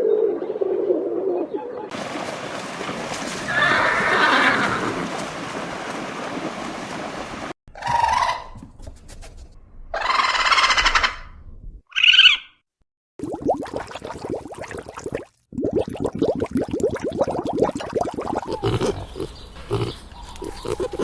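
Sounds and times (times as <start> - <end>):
horse whinnying: 3.4 - 5.1.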